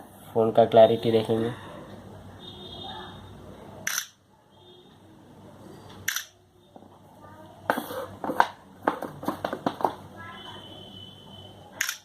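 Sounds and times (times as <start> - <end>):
camera shutter sound: 3.8 - 4.2, 6.0 - 6.4, 11.8 - 12.0.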